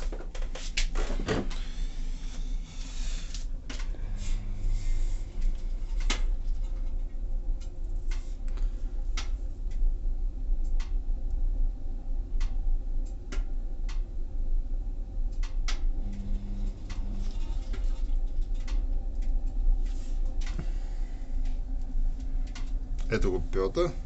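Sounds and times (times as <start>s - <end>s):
pellet stove humming: 0.0s - 24.0s
sharp clicks and ticks: 10.6s - 11.4s, 12.4s - 14.1s, 15.3s - 16.3s, 21.4s - 23.9s.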